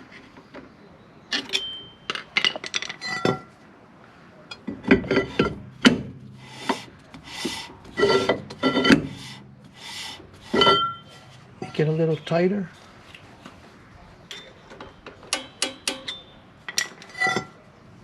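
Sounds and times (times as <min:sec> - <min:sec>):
metal clicks with ringing tones: 0:01.3 - 0:02.4, 0:14.3 - 0:17.6
metal tool scraping rubs: 0:06.3 - 0:13.0.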